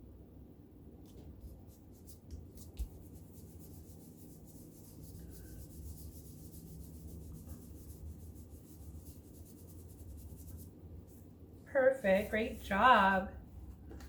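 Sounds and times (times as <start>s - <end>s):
low steady hum: 0.0s - 14.0s
scratchy rubbing on paper: 1.4s - 11.2s.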